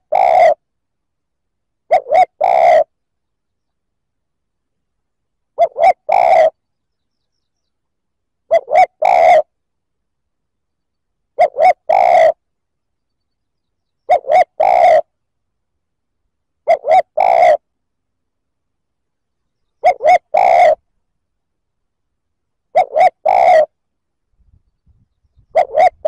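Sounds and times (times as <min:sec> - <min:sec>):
dove cooing: 0:00.0 - 0:00.6, 0:01.9 - 0:02.9, 0:05.6 - 0:06.6, 0:08.5 - 0:09.5, 0:11.4 - 0:12.4, 0:14.1 - 0:15.1, 0:16.6 - 0:17.7, 0:19.8 - 0:20.8, 0:22.7 - 0:23.8, 0:25.4 - 0:26.0.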